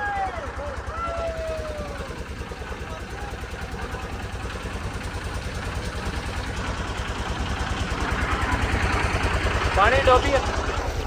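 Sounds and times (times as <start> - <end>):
motorboat engine throbbing: 0.0 - 11.0.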